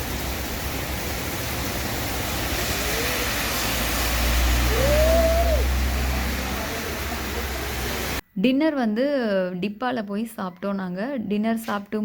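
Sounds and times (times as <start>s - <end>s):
hiss of water: 0.0s - 8.2s.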